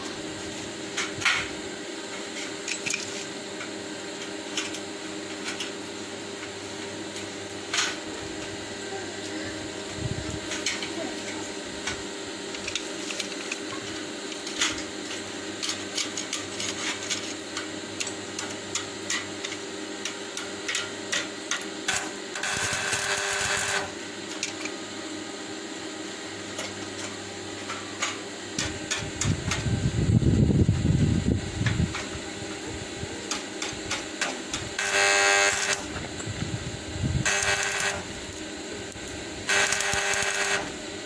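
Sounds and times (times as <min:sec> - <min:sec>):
steady hum: 0:00.0 - 0:41.0
harsh whirring burst: 0:28.5 - 0:41.0.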